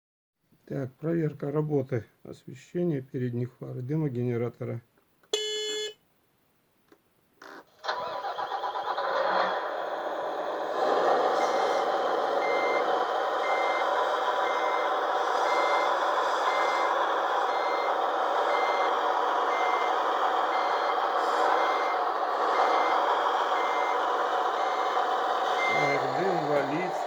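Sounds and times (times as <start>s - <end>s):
diesel engine running: 7.8s - 27.0s
reversing beeper: 11.3s - 27.0s.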